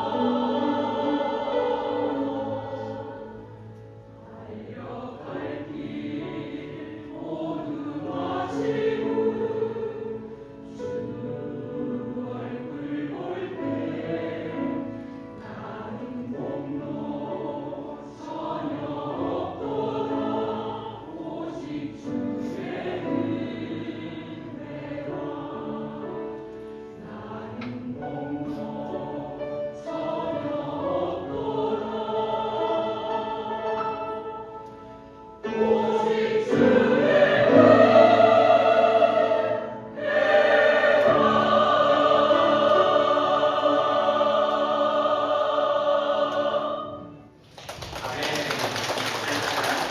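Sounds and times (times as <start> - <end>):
choir singing a praise song: 0.0 - 49.9.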